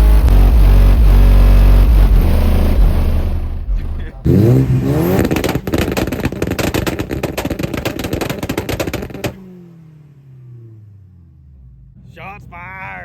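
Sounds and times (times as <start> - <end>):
car engine settling: 0.0 - 13.0
car exhaust popping and crackling: 0.0 - 13.0.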